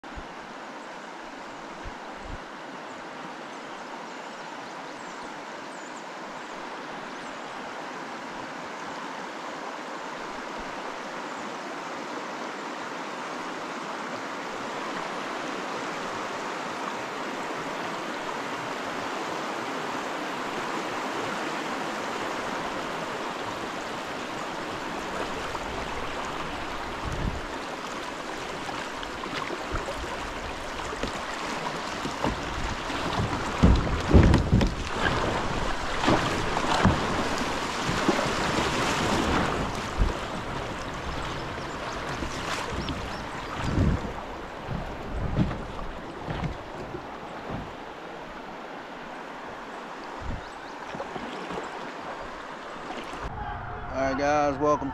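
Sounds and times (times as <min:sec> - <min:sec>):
creek water rushing: 0:00.0 - 0:54.9
soft low thumps: 0:43.6 - 0:47.8.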